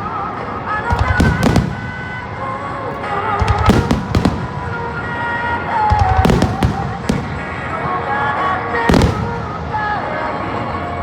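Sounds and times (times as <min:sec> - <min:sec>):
melodic music: 0:00.0 - 0:11.0
fireworks bursting booms: 0:00.8 - 0:02.4, 0:03.1 - 0:10.2.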